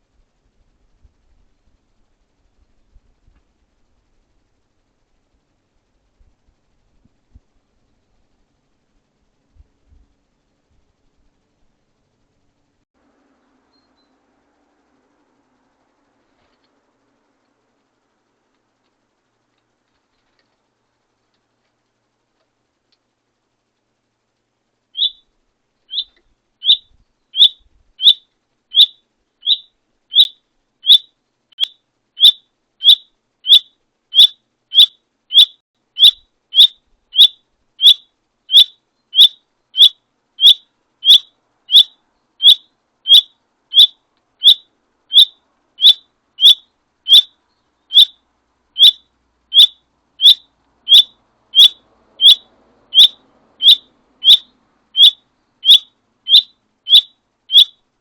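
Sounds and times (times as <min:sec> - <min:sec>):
songbird repeating high call: 0:25.0 - 0:48.2, 0:48.8 - 0:57.8.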